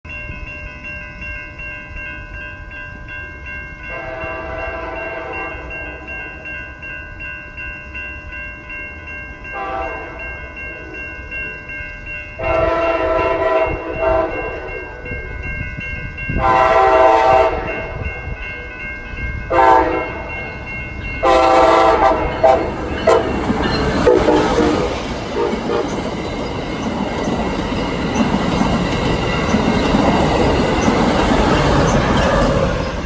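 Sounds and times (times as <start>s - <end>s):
crossing warning bells ringing: 0.1s - 33.0s
train horn blasts: 3.9s - 5.8s, 9.6s - 10.3s, 12.4s - 15.1s, 16.4s - 18.0s, 19.5s - 20.3s, 21.2s - 26.1s.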